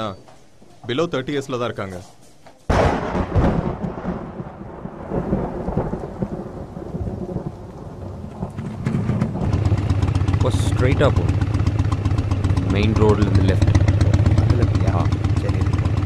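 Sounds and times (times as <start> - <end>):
steady rain: 2.7 - 16.0
thunder rumbling: 2.7 - 16.0
motorcycle engine approaching: 7.9 - 16.0.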